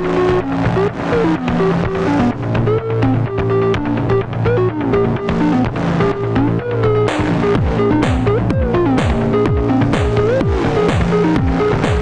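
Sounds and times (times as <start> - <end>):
deep kick drum: 7.1 - 12.0.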